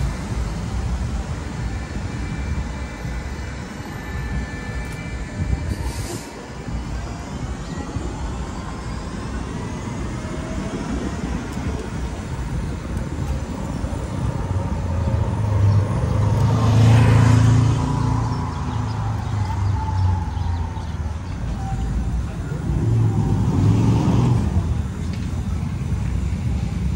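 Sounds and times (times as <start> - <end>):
vehicle passing: 8.2 - 21.3.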